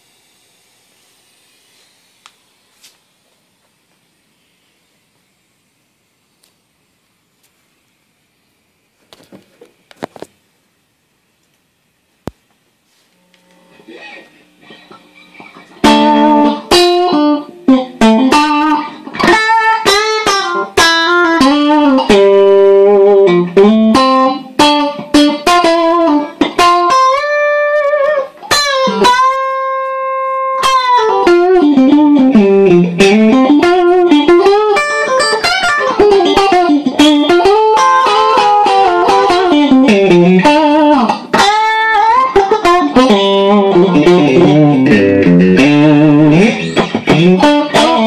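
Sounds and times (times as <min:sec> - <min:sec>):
electric guitar notes: 0:13.2 - 0:48.0.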